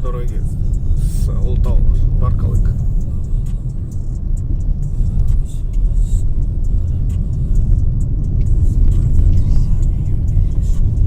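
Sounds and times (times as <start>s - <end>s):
car engine and tyre rumble: 0.0s - 11.0s
light ticks: 2.6s - 11.0s.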